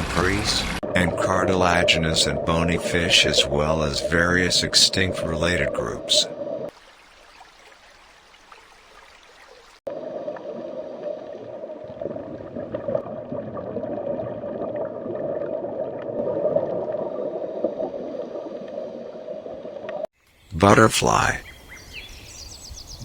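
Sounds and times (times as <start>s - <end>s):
water gurgling and bubbling: 0.0s - 6.7s, 9.9s - 20.1s.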